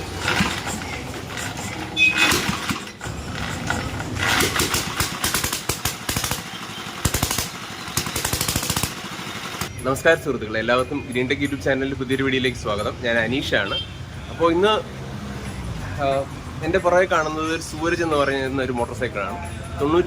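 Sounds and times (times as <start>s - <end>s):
motorcycle engine starting and running: 0.0s - 9.8s.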